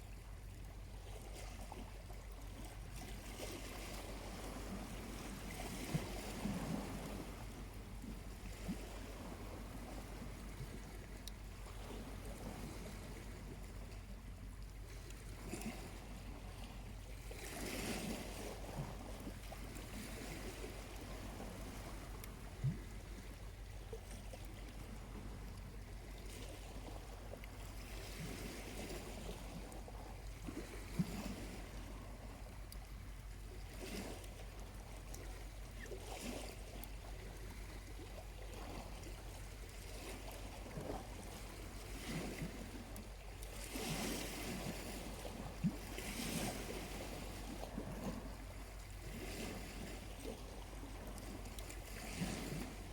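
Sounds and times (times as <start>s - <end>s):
small waves washing onto beach: 0.0s - 52.9s.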